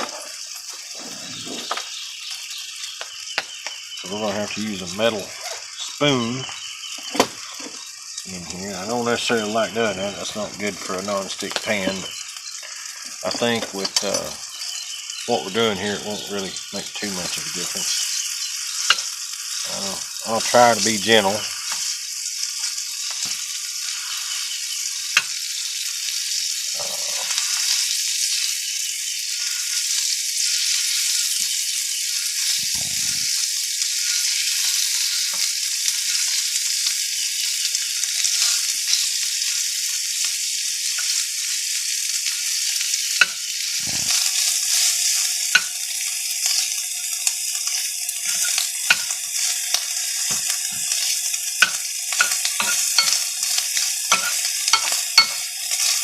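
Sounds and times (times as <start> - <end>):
sausage sizzling in a pan: 0.0 - 56.0
metal spoon scraping a pan: 17.9 - 19.6, 34.0 - 35.5, 42.2 - 56.0.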